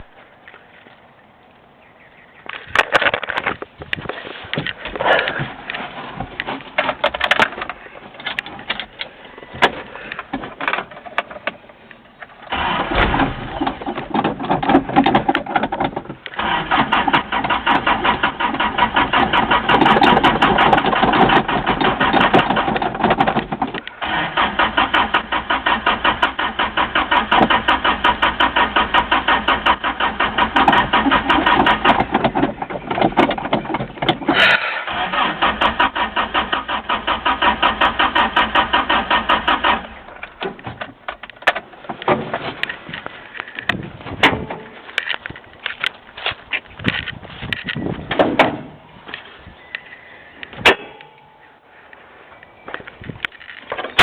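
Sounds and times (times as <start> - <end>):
scattered clicks and knocks: 2.5 - 11.7, 12.9 - 16.4, 17.1 - 24.0, 30.4 - 34.4, 40.1 - 48.7
truck engine turning over: 2.6 - 54.0.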